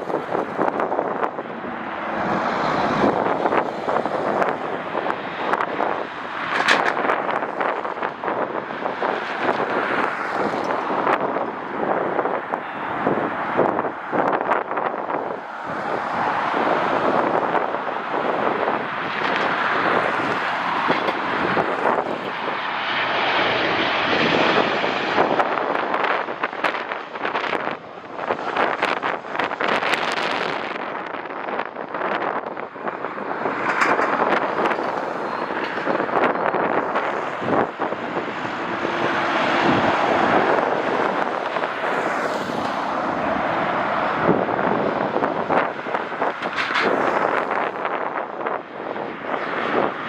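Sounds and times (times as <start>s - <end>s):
jet engines rushing: 0.0s - 50.0s
wind buffeting microphone: 0.0s - 50.0s.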